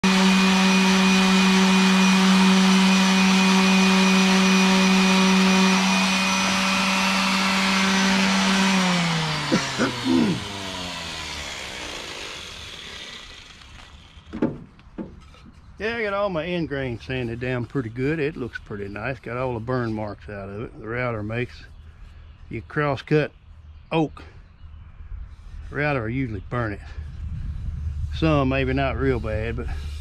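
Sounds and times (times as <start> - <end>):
sander winding down whine: 0.0 - 14.6
electric power sander: 0.0 - 16.3.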